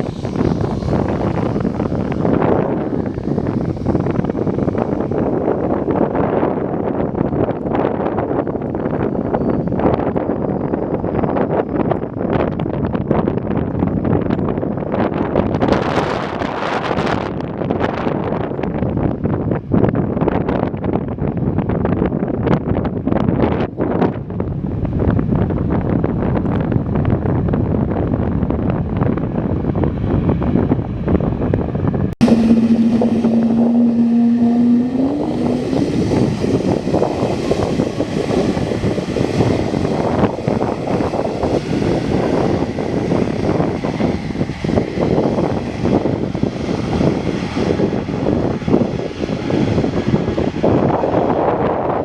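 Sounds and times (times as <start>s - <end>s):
steady rising tone: 0.0s - 5.4s, 32.1s - 46.6s
aircraft engine noise: 0.0s - 21.6s, 24.3s - 52.0s
wind rumbling on microphone: 0.0s - 52.0s.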